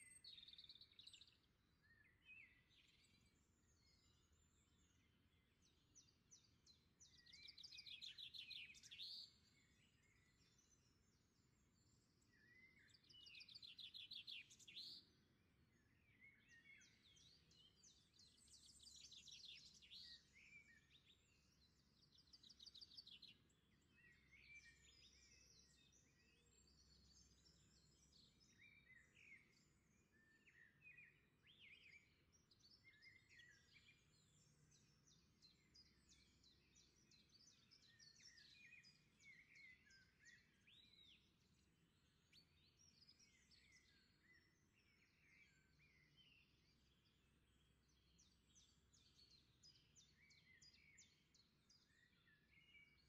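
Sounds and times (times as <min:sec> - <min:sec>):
songbirds chirping and whistling: 0:00.0 - 0:53.0.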